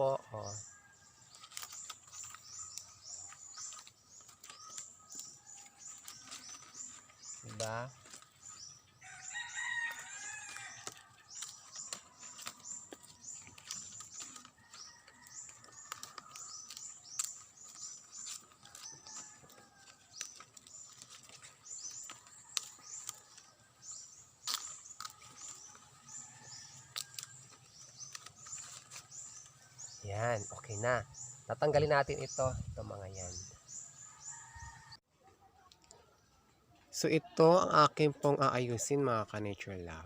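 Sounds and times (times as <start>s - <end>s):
small birds chirping: 0.0s - 40.0s
sharp clicks and crackles: 15.6s - 23.5s, 24.4s - 25.8s.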